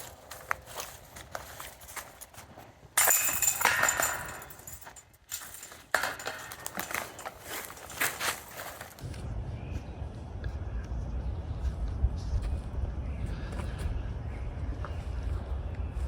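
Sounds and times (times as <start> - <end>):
basket chains rattling: 3.0 - 9.0.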